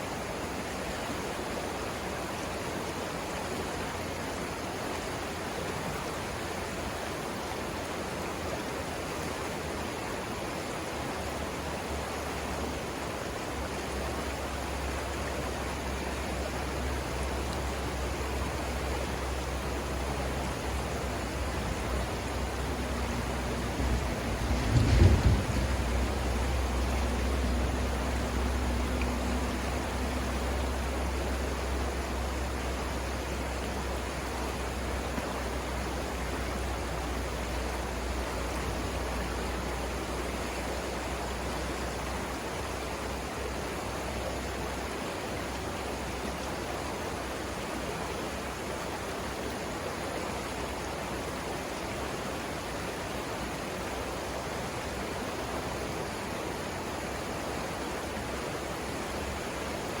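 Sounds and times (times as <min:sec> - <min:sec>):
river water rushing over rapids: 0:00.0 - 1:00.0
low rumble: 0:21.3 - 0:30.4.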